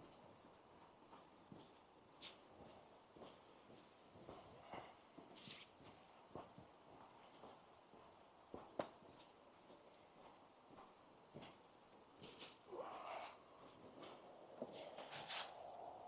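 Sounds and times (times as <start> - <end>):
footsteps on a path: 0.0 - 16.0.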